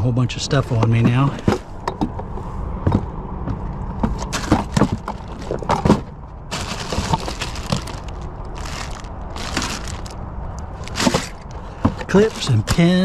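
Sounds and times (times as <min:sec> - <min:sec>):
rustling and scraping: 0:00.7 - 0:13.0
small metal objects rattling: 0:06.5 - 0:11.5.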